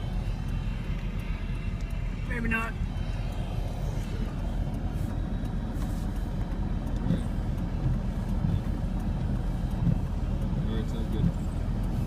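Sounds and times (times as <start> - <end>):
vehicle engine rumble: 0.0 - 12.0
wind: 0.0 - 12.0.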